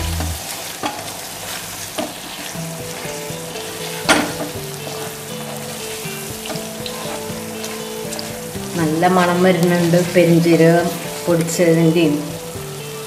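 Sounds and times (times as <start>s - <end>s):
food sizzling in a pan: 0.0s - 13.0s
spatula stirring and scraping: 2.3s - 11.7s.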